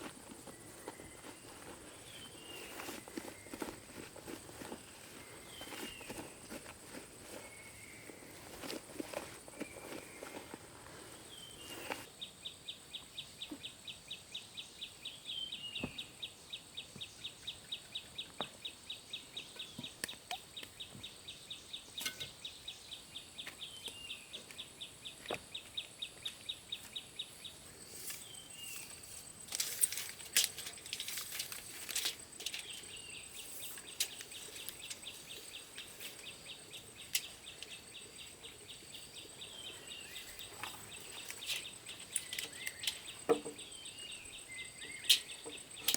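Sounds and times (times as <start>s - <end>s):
insects chirping: 0.0s - 45.9s.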